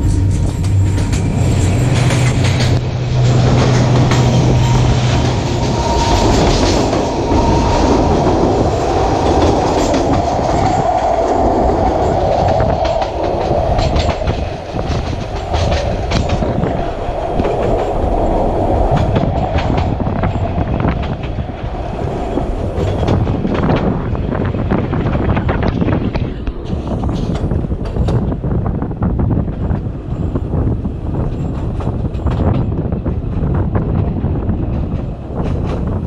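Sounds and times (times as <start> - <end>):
wheels clicking over rail joints: 0.0 - 28.6
train rumbling: 0.0 - 36.0.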